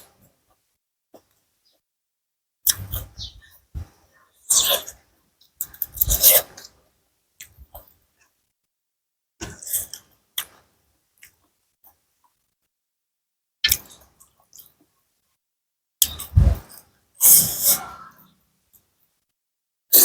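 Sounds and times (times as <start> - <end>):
slurping eating sounds: 5.9 - 6.6, 16.1 - 18.3.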